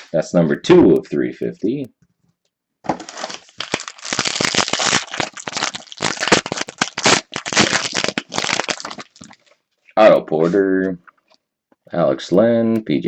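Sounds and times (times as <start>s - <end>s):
plastic wrapper crinkling: 2.9s - 9.6s.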